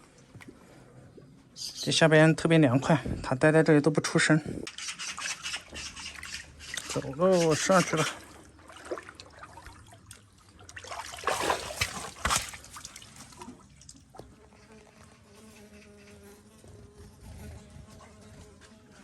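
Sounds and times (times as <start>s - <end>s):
insect buzzing: 14.2s - 19.0s.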